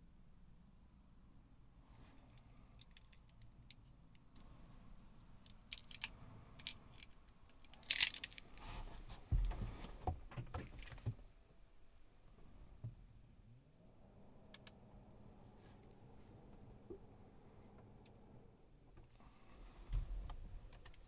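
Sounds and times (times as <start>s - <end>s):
sharp clicks and light rattles: 2.2s - 4.5s, 5.4s - 8.6s.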